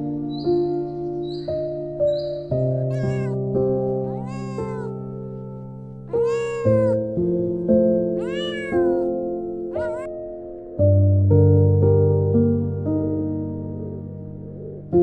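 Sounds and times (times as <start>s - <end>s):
cat meowing: 2.6s - 7.2s, 8.1s - 10.2s.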